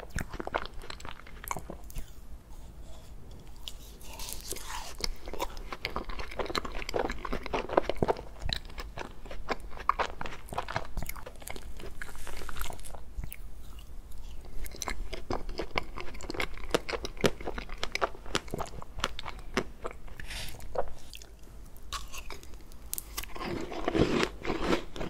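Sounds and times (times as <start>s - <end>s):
wet mouth clicks chewing: 9.8s - 21.3s.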